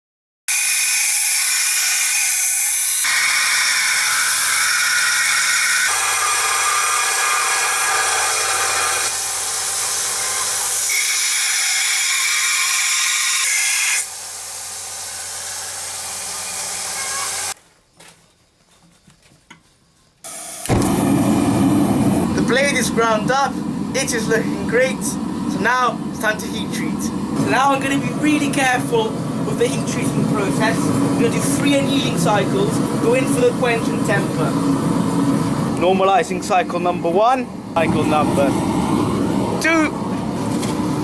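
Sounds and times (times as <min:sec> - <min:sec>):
power grinder grinding knife blade: 0:00.5 - 0:17.6.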